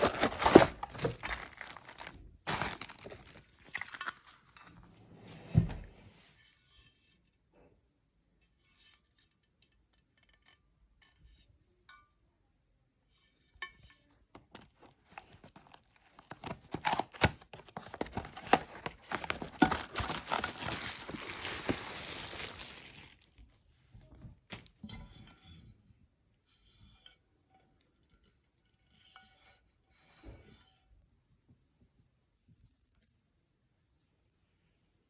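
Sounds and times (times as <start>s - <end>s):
packaging clicks and clinks: 0.0s - 4.2s, 14.5s - 23.3s
plastic wrapping crinkling and tearing: 0.0s - 4.4s, 14.6s - 23.6s.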